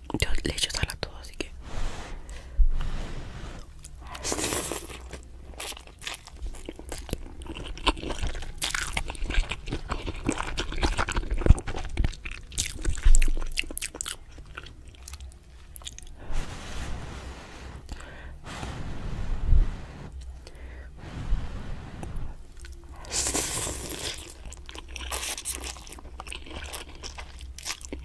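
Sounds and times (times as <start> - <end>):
person chewing and crunching food: 3.6 - 16.8, 22.1 - 28.0.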